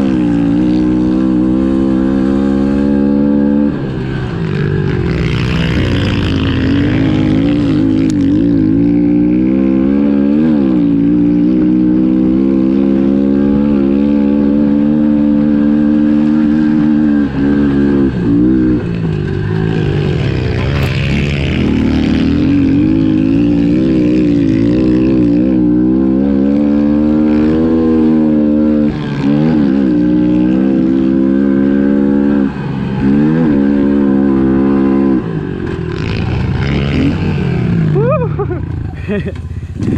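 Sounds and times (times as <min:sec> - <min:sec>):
small motorbike engine revving: 0:00.0 - 0:39.9.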